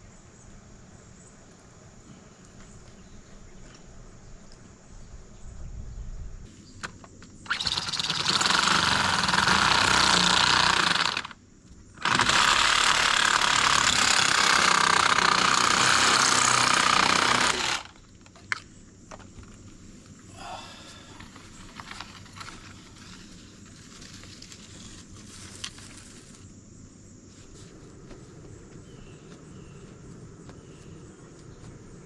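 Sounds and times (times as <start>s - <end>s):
power tool running: 7.5s - 11.4s, 12.0s - 18.0s.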